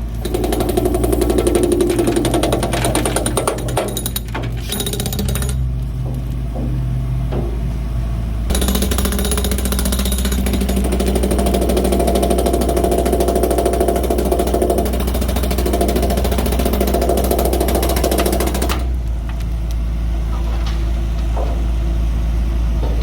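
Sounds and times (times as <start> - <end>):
engine hum: 0.0 - 23.0
chipping hammer rattling on concrete: 0.2 - 6.4, 8.5 - 19.0.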